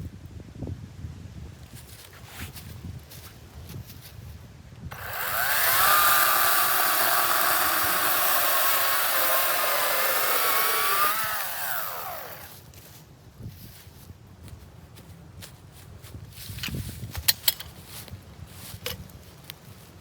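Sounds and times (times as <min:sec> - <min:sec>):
electric chainsaw motor whining: 0:04.9 - 0:12.6.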